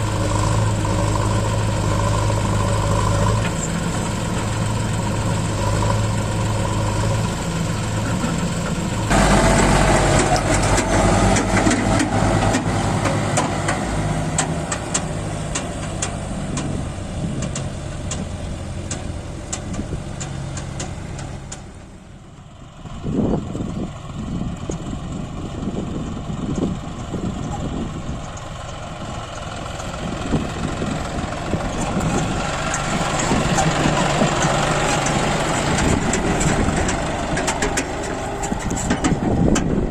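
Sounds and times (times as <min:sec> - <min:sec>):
diesel engine running: 0:00.0 - 0:39.9
sharp rattling ticks: 0:31.8 - 0:39.7.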